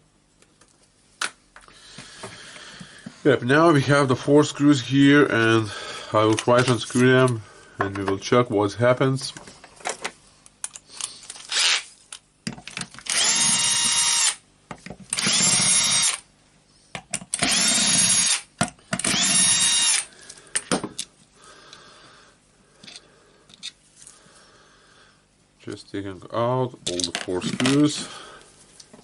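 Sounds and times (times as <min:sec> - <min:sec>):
clicks and handling of parts: 0:06.2 - 0:08.3, 0:09.2 - 0:13.2, 0:20.3 - 0:21.2, 0:22.8 - 0:24.1, 0:26.8 - 0:28.0
power screwdriver whirring: 0:11.5 - 0:11.9, 0:13.0 - 0:14.4, 0:15.1 - 0:16.2, 0:17.4 - 0:20.1.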